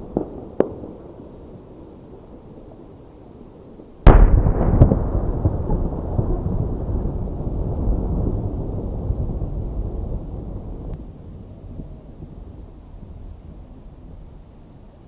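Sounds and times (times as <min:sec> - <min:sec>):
firework boom: 0:04.1 - 0:10.9
low rolling rumble: 0:04.1 - 0:14.8.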